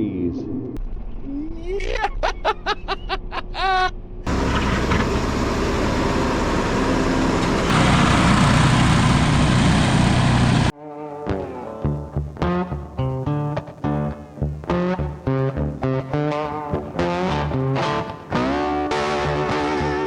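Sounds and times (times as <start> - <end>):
engine cranking and running: 4.3 - 10.7.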